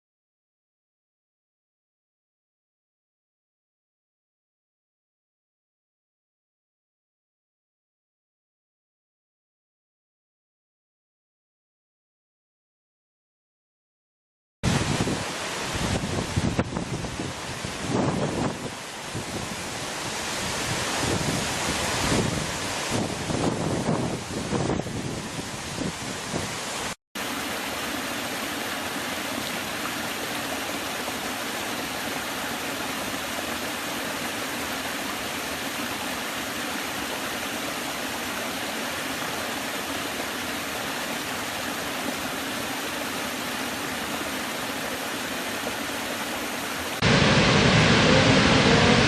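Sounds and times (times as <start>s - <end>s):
deeper rush of water: 14.6s - 49.0s
running water rushing: 14.6s - 49.0s.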